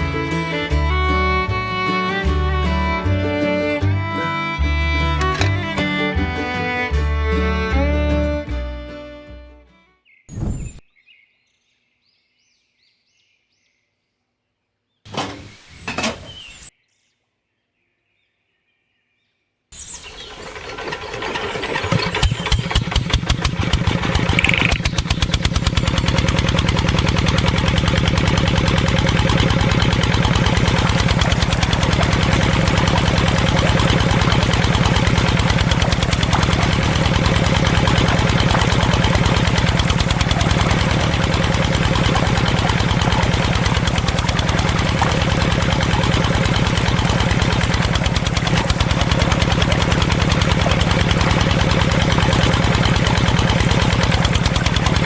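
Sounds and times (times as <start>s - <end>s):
small motor running: 0.0s - 8.6s, 24.4s - 55.0s
short sounds: 0.0s - 10.8s.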